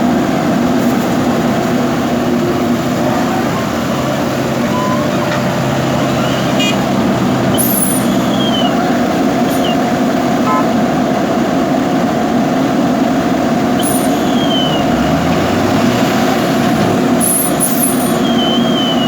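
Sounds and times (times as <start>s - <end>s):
diesel engine running: 0.0s - 19.0s
short high squeaks: 4.5s - 6.9s, 7.5s - 8.8s, 9.4s - 9.9s, 13.8s - 14.9s, 17.2s - 19.0s.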